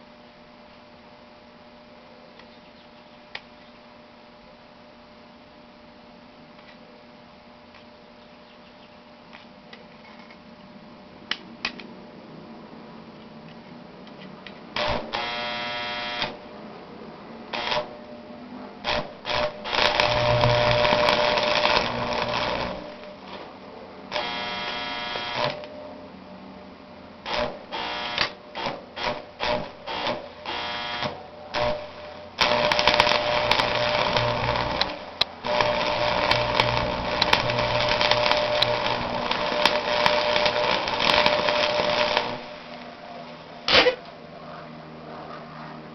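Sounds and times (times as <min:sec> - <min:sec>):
welding arc crackling and buzzing: 0:14.7 - 0:16.5, 0:17.5 - 0:18.0, 0:18.8 - 0:25.7, 0:27.2 - 0:44.0.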